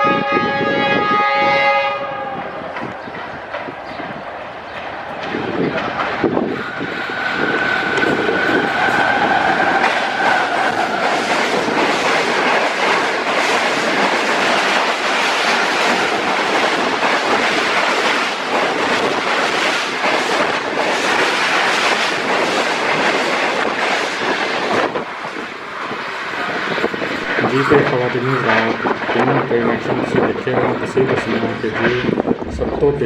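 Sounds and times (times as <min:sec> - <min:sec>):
passenger train passing: 0:00.0 - 0:33.0.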